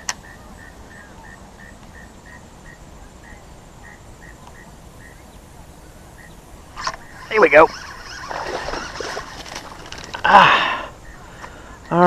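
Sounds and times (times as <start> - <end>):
low outdoor hiss: 0.0 - 12.0
small animal chirping: 6.2 - 9.4.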